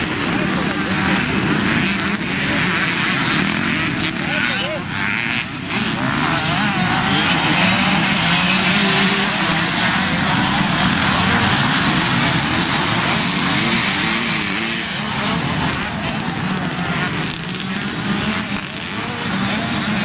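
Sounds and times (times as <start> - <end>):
motocross bikes revving: 0.0 - 20.0.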